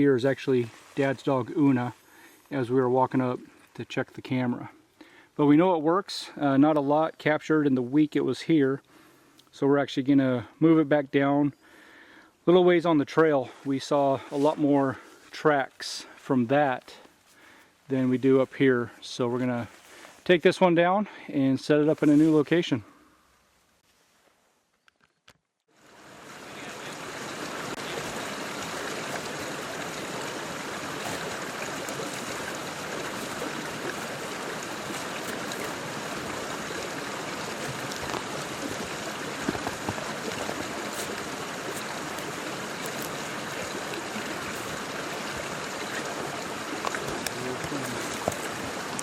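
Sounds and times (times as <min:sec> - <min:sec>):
stream water rushing: 0:25.7 - 0:49.0.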